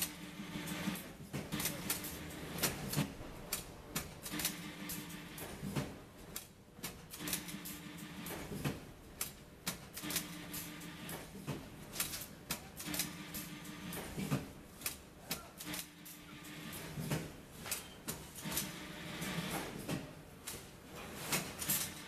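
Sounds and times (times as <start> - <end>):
sharp machine clicks: 0.0 - 5.7, 6.3 - 8.4, 9.2 - 11.2, 11.9 - 14.2, 14.8 - 16.7
strapping machine motor hum: 0.0 - 17.6.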